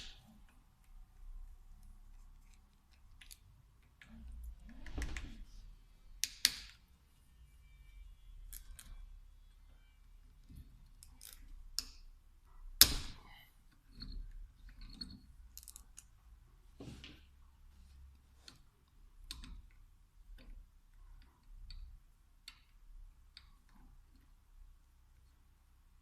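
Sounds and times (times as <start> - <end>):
metal tools clicking and knocking: 13.8 - 16.1.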